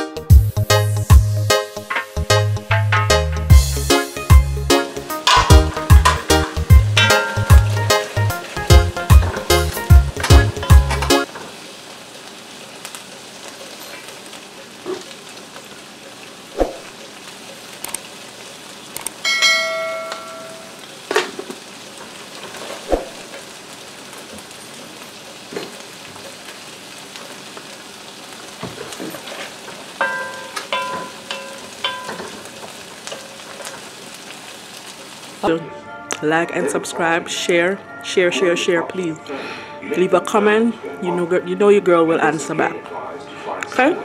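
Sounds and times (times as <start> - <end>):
stir fry sizzling in a wok: 0.0 - 35.5
bell-like chime: 7.0 - 8.1, 19.2 - 20.8.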